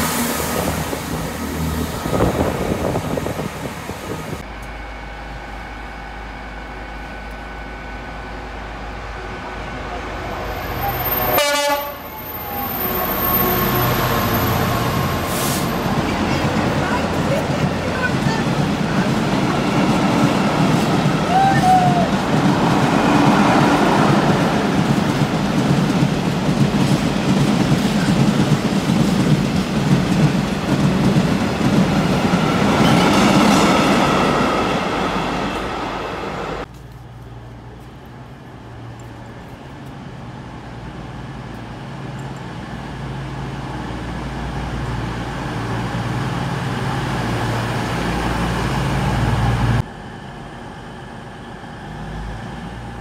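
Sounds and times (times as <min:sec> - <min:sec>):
train diesel engine drone: 0:00.0 - 0:53.0
train wheels clattering on track: 0:14.4 - 0:34.9.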